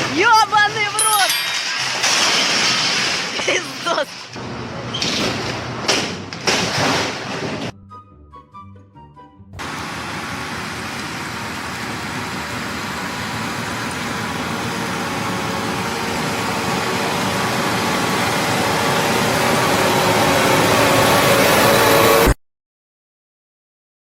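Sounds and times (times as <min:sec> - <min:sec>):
motor vehicle engine running: 0:09.6 - 0:22.2.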